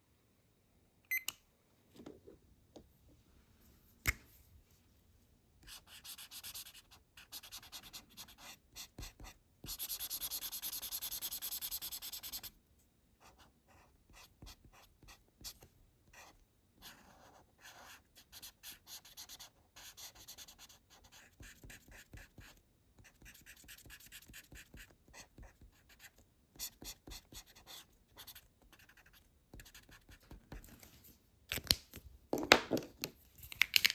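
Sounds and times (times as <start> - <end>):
marker scratching on paper: 5.7 - 12.5, 13.2 - 30.7.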